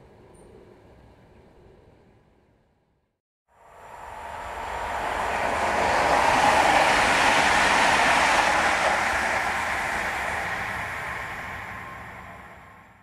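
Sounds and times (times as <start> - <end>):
train wheels rushing on rails: 3.6 - 13.0.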